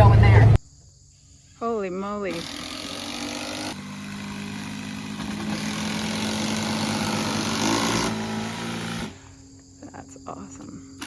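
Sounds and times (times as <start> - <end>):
driving noise rush: 0.0 - 0.6
vehicle engine running: 0.0 - 0.6.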